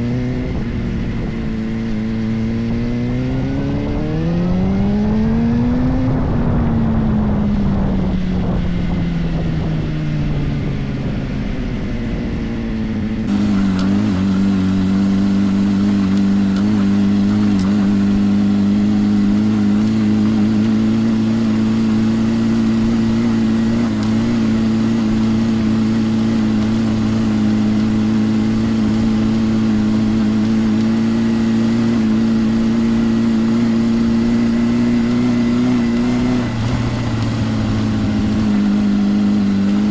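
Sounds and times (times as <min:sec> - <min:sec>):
motorcycle engine under way: 0:00.0 - 0:39.9.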